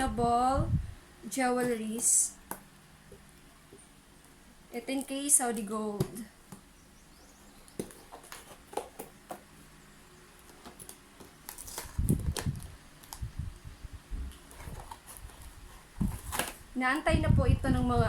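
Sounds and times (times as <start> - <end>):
packaging clicks and taps: 7.7 - 9.5, 10.4 - 13.2.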